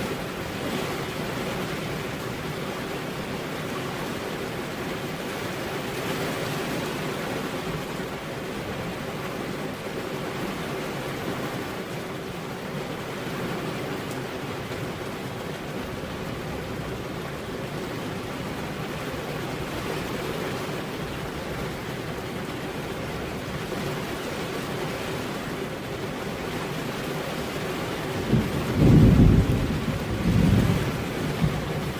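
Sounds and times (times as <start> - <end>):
heavy rain hissing: 26.4 - 31.9.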